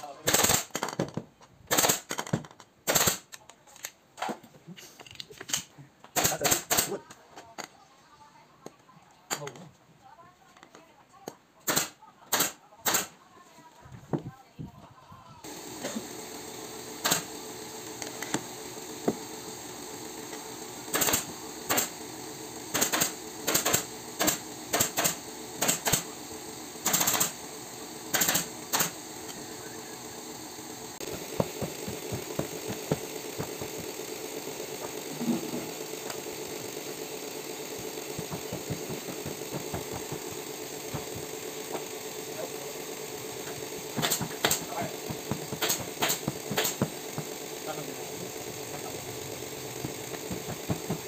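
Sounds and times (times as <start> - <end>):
pneumatic staple gun firing: 0.1 - 1.0, 1.7 - 3.4, 5.4 - 7.0, 11.6 - 13.1, 15.5 - 29.4, 31.0 - 36.8, 37.7 - 42.0, 43.4 - 48.9, 49.6 - 51.0
steady mechanical hum: 2.8 - 51.0.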